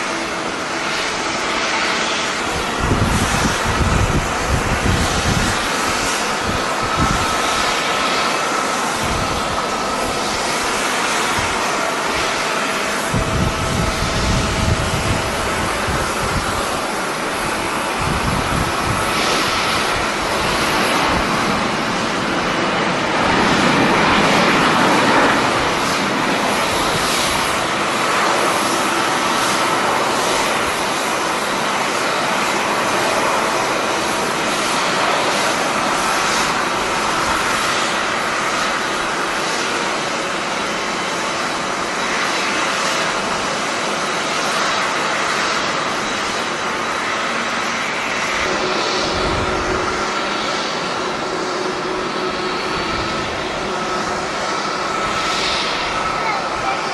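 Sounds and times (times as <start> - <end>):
jet engines rushing: 0.0 - 56.9
wind gusting on microphone: 0.0 - 56.9.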